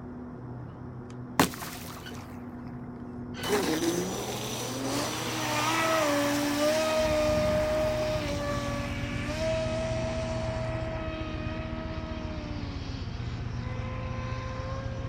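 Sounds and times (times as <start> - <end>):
electric motor whine: 3.4 - 15.0.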